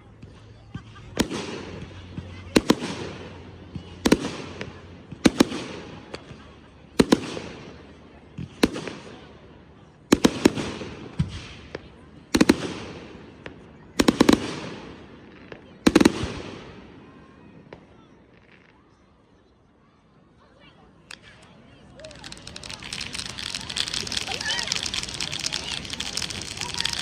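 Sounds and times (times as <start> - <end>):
fireworks bursting with crackle: 0.9 - 9.4, 10.1 - 16.9, 21.1 - 27.0.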